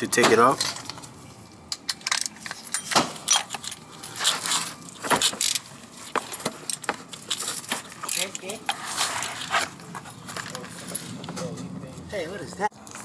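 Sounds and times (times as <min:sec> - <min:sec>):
metallic wrench clicks and clinks: 0:01.7 - 0:04.4, 0:05.2 - 0:05.7, 0:08.0 - 0:08.8.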